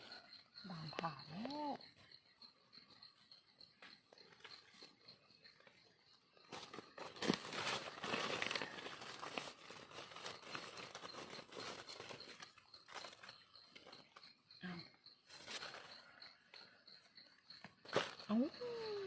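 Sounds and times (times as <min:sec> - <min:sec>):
insect chirping: 0:00.0 - 0:19.0
leaf litter rustling and crackling: 0:06.5 - 0:13.3.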